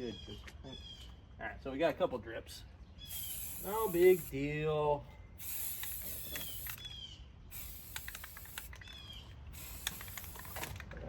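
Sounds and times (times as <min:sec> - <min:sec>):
bird chirping falling calls: 0:02.8 - 0:03.9, 0:06.2 - 0:07.6, 0:08.7 - 0:09.4.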